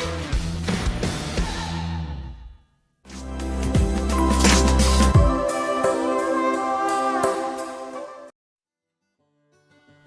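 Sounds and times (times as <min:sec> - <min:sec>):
background music with steady beat: 0:03.1 - 0:08.3.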